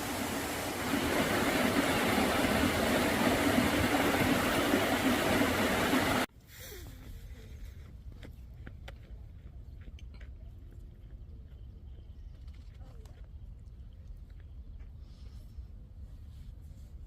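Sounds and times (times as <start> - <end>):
loud rushing noise: 0.0 - 6.3.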